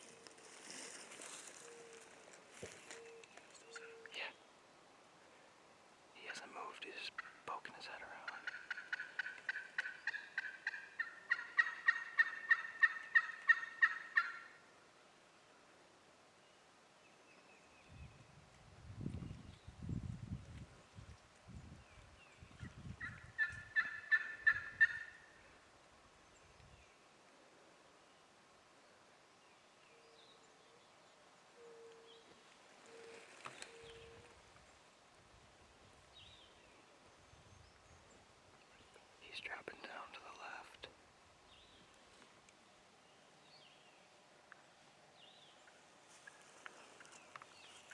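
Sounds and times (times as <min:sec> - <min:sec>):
distant songbird chirps: 0:00.0 - 0:04.5, 0:06.2 - 0:14.7, 0:28.0 - 0:47.9
turkey yelps: 0:08.4 - 0:14.6, 0:23.0 - 0:25.2.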